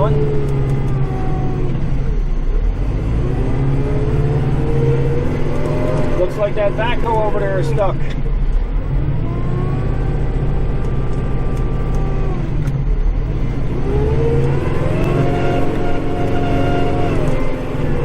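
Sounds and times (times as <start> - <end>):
tractor diesel engine revving: 0.0 - 18.0.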